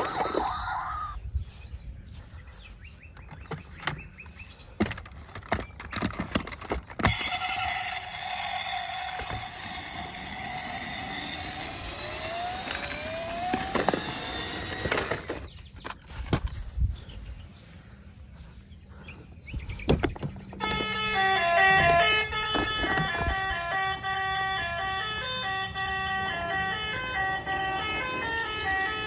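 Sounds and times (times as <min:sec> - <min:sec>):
plastic toy cars clicking: 0:04.8 - 0:16.0
electronic toy sound effect: 0:07.0 - 0:15.5, 0:24.8 - 0:29.0.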